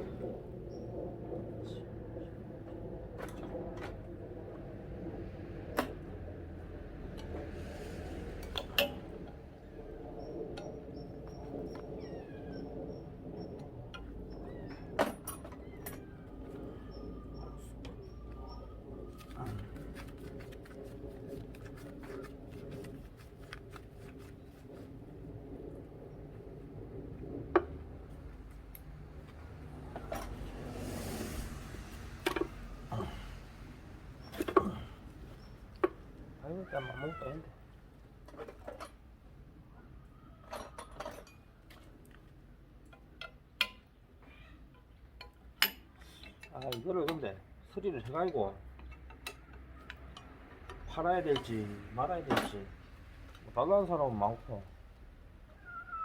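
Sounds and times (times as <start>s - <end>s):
steady low hum: 0.0s - 36.6s.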